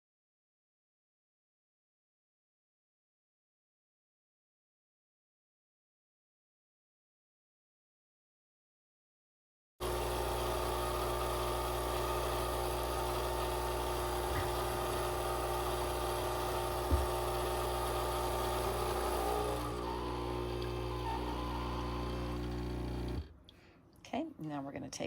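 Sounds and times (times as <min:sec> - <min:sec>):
coffee machine pump humming: 0:09.8 - 0:23.4.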